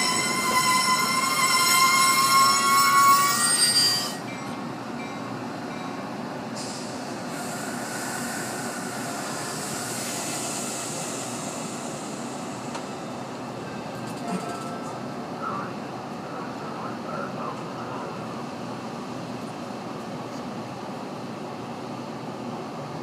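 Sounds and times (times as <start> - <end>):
train brakes squealing: 0.0 - 5.2, 6.6 - 13.2
stopped train running: 0.0 - 20.5
air hissing: 6.6 - 12.8.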